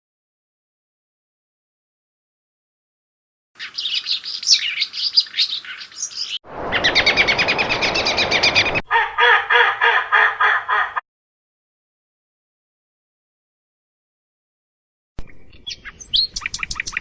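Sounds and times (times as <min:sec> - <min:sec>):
bird chirping: 0:03.6 - 0:09.1, 0:15.2 - 0:17.0
bird trilling: 0:03.6 - 0:10.8, 0:15.2 - 0:17.0
bird repeated call: 0:03.6 - 0:11.0.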